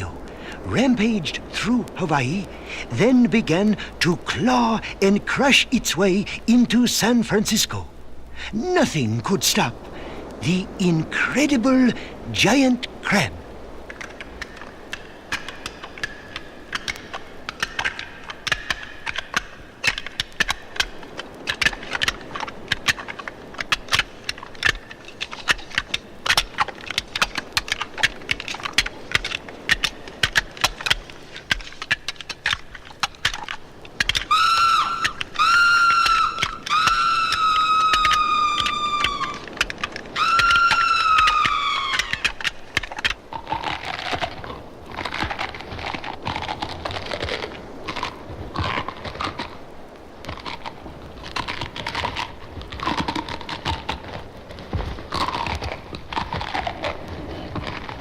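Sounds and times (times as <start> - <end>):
sharp clicks and cracks: 13.8 - 58.0
shrill screeching cries: 34.2 - 39.5, 40.1 - 42.3.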